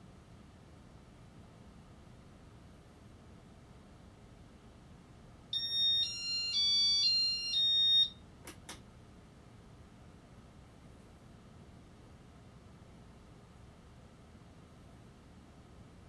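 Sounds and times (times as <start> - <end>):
electronic beeper chime: 5.6 - 8.1.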